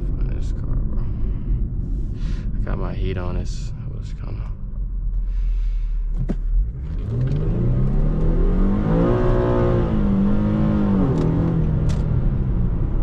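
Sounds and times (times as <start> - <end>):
car engine accelerating hard: 6.1 - 13.0.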